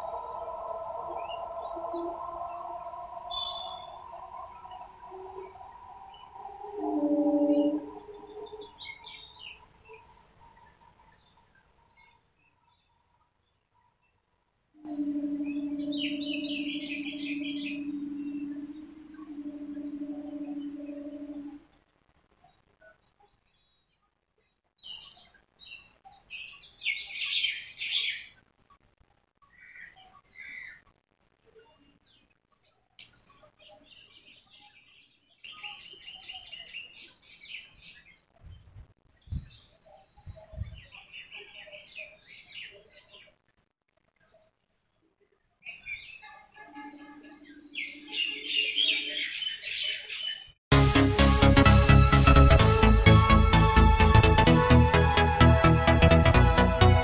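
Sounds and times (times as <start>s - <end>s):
low steady tone: 0.0s - 8.9s, 14.8s - 21.6s, 46.6s - 49.2s
birds chirping: 0.0s - 13.0s, 14.8s - 21.6s, 45.3s - 50.6s.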